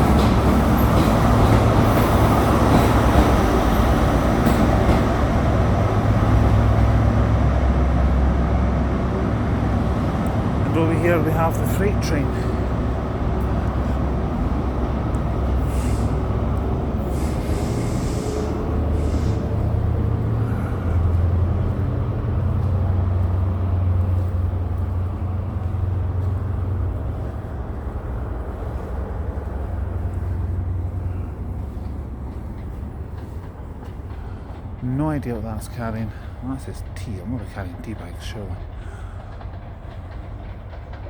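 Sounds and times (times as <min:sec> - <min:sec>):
diesel train engine drone: 0:00.0 - 0:41.0
short air hisses: 0:15.6 - 0:16.2, 0:17.0 - 0:19.5.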